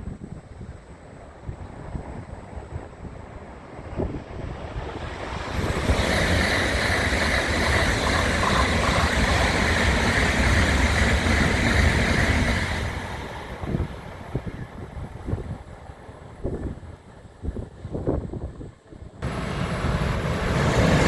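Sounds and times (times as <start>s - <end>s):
high-speed train rushing past: 0.6s - 21.0s.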